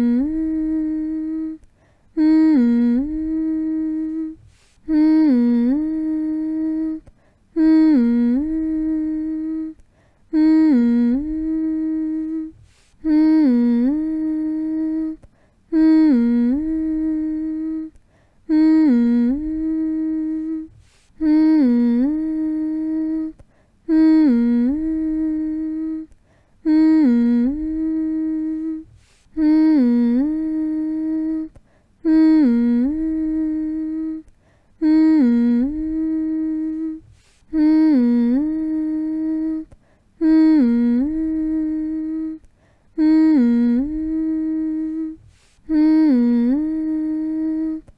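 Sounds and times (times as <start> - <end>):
person humming: 0.0 - 47.9.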